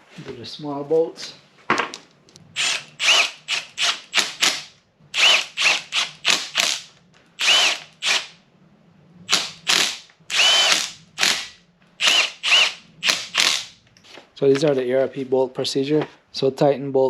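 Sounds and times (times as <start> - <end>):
power drill motor whine: 2.6 - 8.4, 9.3 - 13.8.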